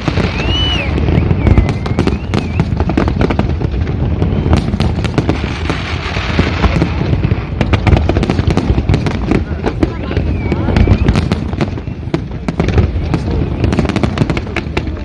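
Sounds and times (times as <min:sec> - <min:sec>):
fireworks bangs and crackles: 0:00.0 - 0:15.0
high wavering whistle: 0:00.1 - 0:02.8.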